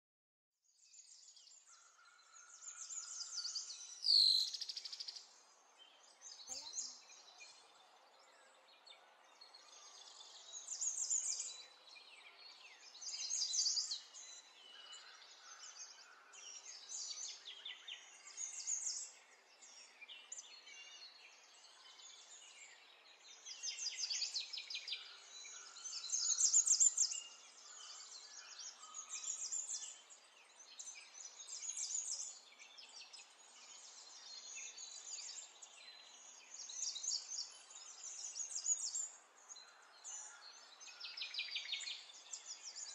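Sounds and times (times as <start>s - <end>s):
small birds singing: 0.6s - 42.9s
faint outdoor hiss: 1.2s - 15.6s.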